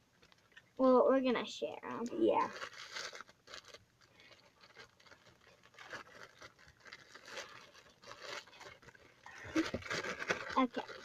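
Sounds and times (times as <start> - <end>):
packaging crinkling: 1.9 - 11.0.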